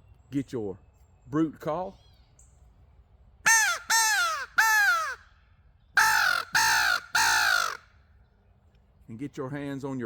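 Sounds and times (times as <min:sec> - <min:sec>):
crow call caws: 0:03.5 - 0:05.3, 0:06.0 - 0:08.0.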